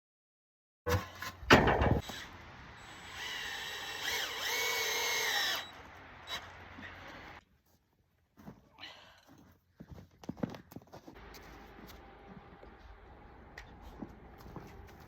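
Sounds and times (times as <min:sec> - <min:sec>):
power drill running: 0:02.0 - 0:07.4.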